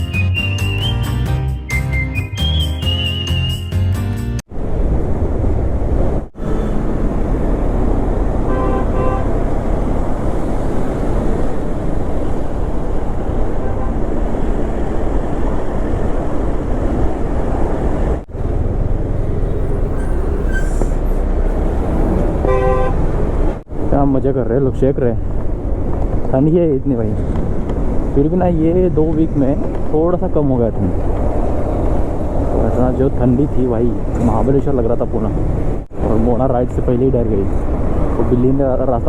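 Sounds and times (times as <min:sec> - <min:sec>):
motorcycle road noise: 0:04.4 - 0:39.0
short horn tones: 0:08.4 - 0:09.3.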